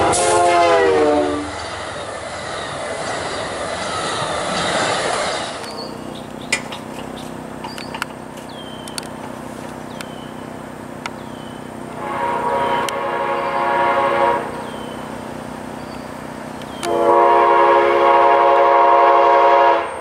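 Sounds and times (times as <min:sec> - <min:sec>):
locomotive air horn chord: 0:00.0 - 0:01.6, 0:11.9 - 0:15.0, 0:16.8 - 0:20.0
passing train rumble: 0:00.0 - 0:20.0
sharp clicks: 0:05.6 - 0:09.3.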